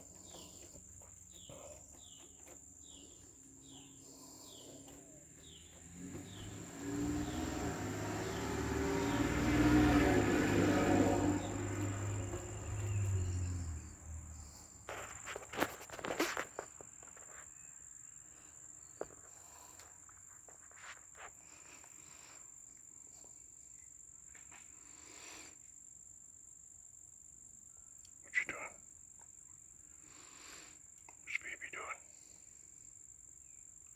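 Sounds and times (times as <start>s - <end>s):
crickets chirring: 0.0s - 33.9s
clicks and rustles: 14.9s - 17.5s.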